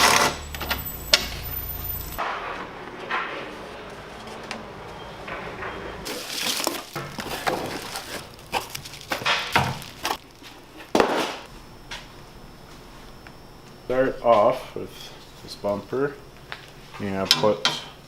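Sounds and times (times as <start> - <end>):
rustling: 6.0 - 10.9.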